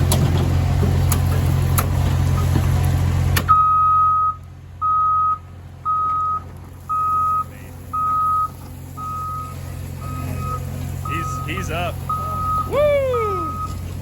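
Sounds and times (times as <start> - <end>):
heavy diesel engine: 0.0 - 14.0
backup alarm beeping: 3.5 - 13.9.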